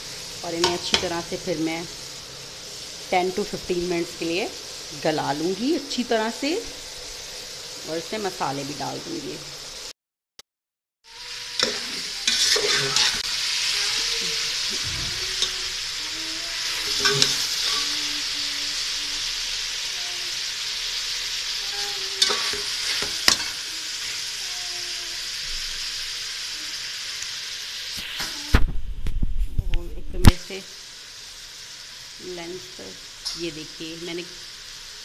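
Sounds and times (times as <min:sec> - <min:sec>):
food sizzling in a pot: 0:00.0 - 0:09.9, 0:11.0 - 0:35.0
metal spatula scraping a pot: 0:11.5 - 0:13.3, 0:14.0 - 0:18.1, 0:21.7 - 0:24.2.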